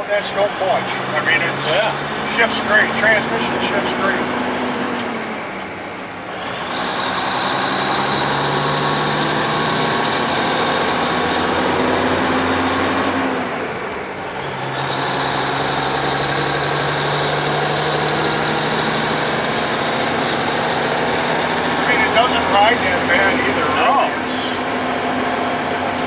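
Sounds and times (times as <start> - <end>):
truck diesel engine pulling: 0.0 - 26.0
steady high whine: 21.8 - 25.0.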